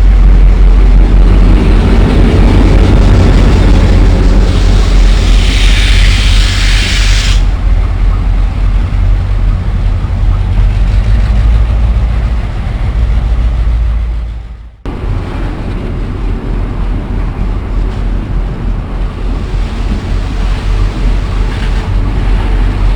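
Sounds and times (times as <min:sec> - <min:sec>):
train rumbling: 0:00.0 - 0:22.9
hiss: 0:04.5 - 0:07.6.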